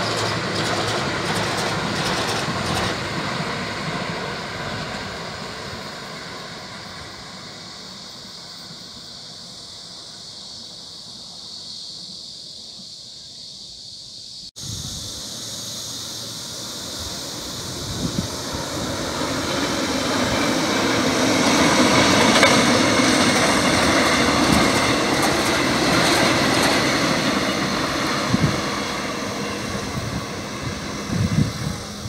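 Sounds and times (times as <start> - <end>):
passing train rumble: 0.0 - 12.9, 14.2 - 32.0
approaching train rumble: 0.0 - 32.0
steady high hiss: 3.1 - 32.0.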